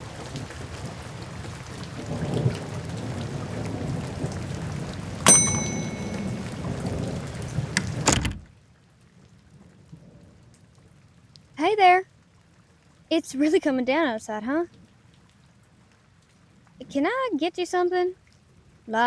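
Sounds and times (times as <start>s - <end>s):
heavy rain: 0.0s - 5.2s
knocks: 5.3s - 6.6s
small bell ringing: 5.3s - 6.7s.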